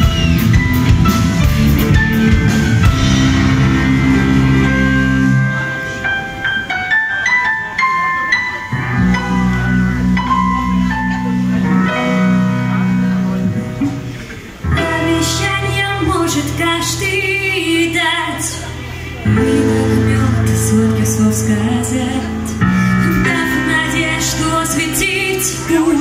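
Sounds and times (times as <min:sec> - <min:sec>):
bass guitar: 0:00.0 - 0:06.0, 0:08.7 - 0:26.0
drums: 0:00.0 - 0:06.4
electric guitar: 0:00.0 - 0:26.0
piano: 0:00.0 - 0:26.0
woman singing: 0:14.7 - 0:26.0.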